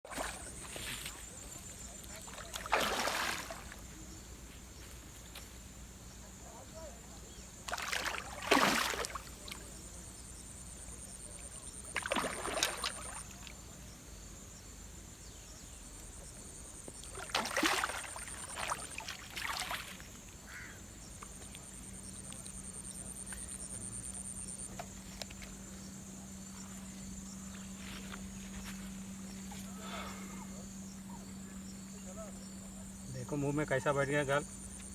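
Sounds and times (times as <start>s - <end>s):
water splashing: 0.0s - 1.0s, 2.1s - 3.8s, 7.7s - 9.8s, 11.8s - 13.6s, 17.0s - 20.2s
high insect trill: 0.1s - 34.9s.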